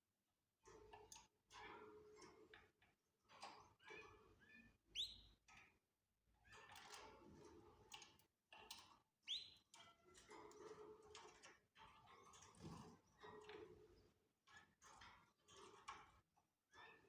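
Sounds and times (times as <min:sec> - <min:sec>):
canaries chirping: 0:09.3 - 0:09.6.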